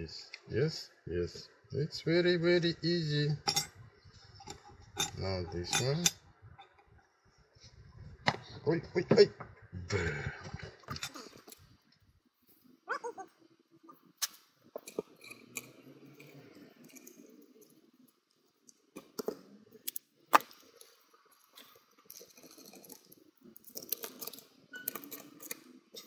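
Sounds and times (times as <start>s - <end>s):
small parts clicking and clinking: 3.5s - 3.7s, 4.4s - 6.8s, 14.0s - 26.0s.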